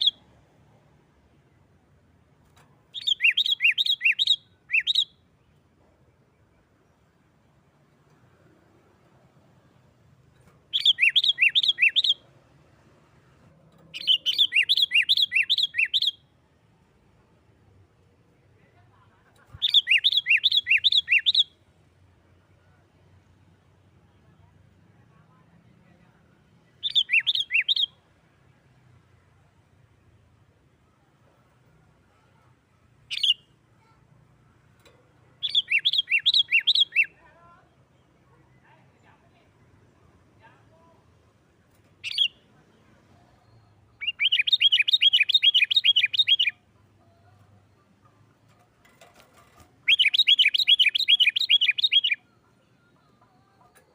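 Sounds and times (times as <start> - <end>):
bird song quick chirps: 0.0 - 0.3, 2.9 - 5.6, 10.7 - 12.2, 13.9 - 16.3, 19.5 - 21.6, 26.8 - 28.0, 33.1 - 33.6, 35.4 - 37.2, 42.0 - 42.5, 43.3 - 46.6, 49.8 - 52.4
bulbul calling: 10.7 - 12.2, 35.4 - 37.2, 42.0 - 42.4, 44.0 - 46.7, 49.8 - 52.2.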